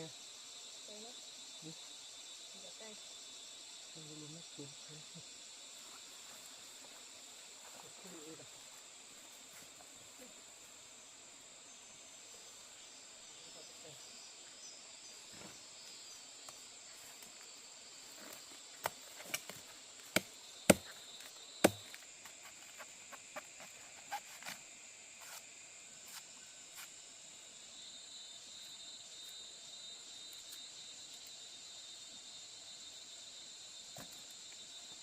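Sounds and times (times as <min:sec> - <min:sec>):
insects buzzing: 0:00.0 - 0:35.0
cutting tool chopping strikes: 0:18.8 - 0:21.0, 0:21.6 - 0:21.9.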